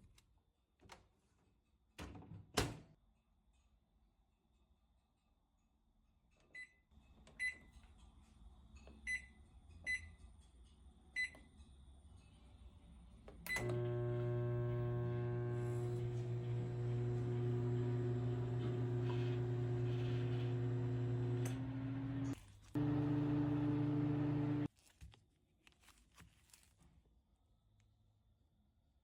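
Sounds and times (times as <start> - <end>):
microwave click: 13.5 - 24.7
microwave oven humming: 13.5 - 24.7.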